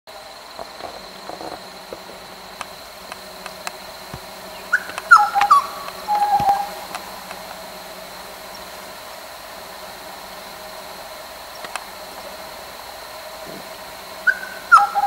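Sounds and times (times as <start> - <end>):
birds whistling calls: 3.1 - 7.5, 14.2 - 15.0
bird wavering note: 3.6 - 7.4, 14.2 - 15.0.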